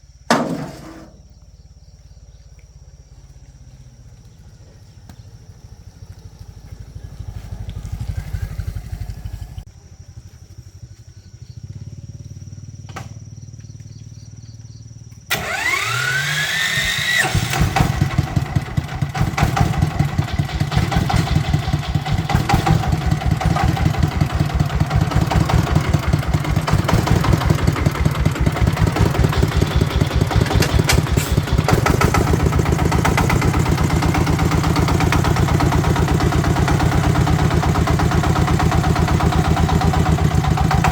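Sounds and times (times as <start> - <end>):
tractor engine chugging: 0.0 - 40.9
starter motor whine: 15.3 - 40.9.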